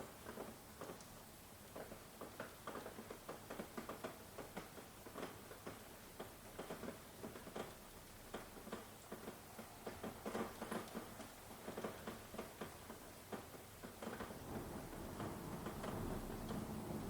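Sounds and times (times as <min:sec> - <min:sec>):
heavy raindrops tapping: 0:02.2 - 0:17.0
low rumble of thunder: 0:14.2 - 0:17.0.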